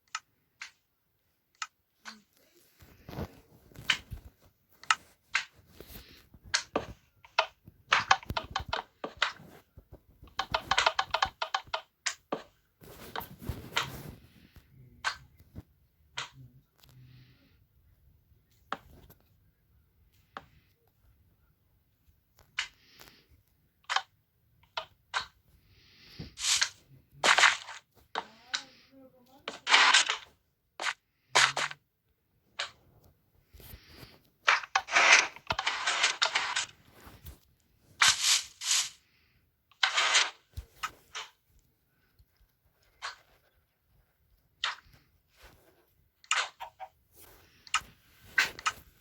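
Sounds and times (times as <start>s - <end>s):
objects being handled: 1.6s - 15.6s, 26.1s - 31.8s, 32.6s - 39.0s.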